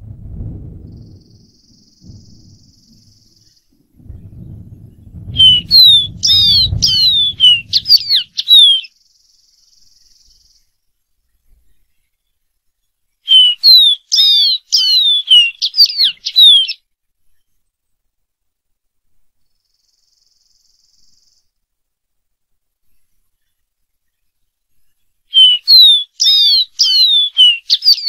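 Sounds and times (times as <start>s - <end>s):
low rumble: 0.0s - 8.4s
bird singing sweet whistles: 0.8s - 10.7s, 13.2s - 17.4s, 25.3s - 28.0s.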